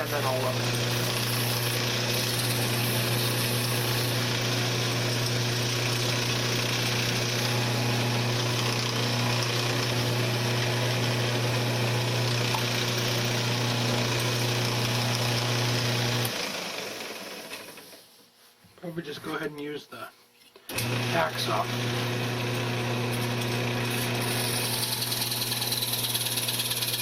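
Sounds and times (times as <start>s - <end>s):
sandpaper hissing on spinning wood: 0.0s - 4.2s, 24.2s - 27.0s
wood lathe motor hum: 0.0s - 17.8s, 20.7s - 27.0s.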